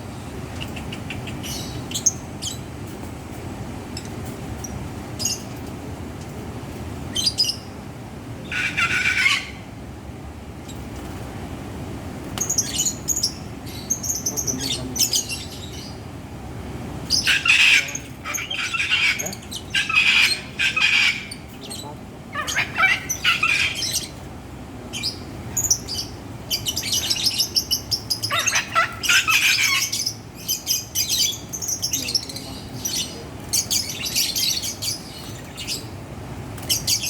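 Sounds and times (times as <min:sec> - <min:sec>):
low background hum: 0:00.0 - 0:37.0
lovebirds squawking: 0:08.4 - 0:09.7, 0:17.0 - 0:24.2, 0:24.9 - 0:36.0.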